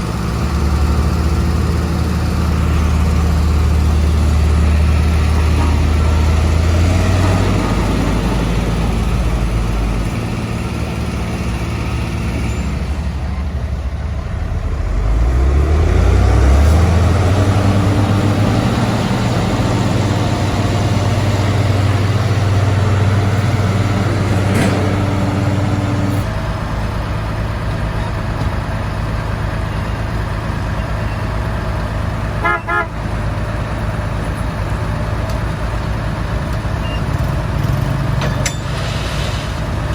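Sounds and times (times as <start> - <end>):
heavy machinery diesel engines: 0.0 - 39.9
horn toot: 32.4 - 33.0.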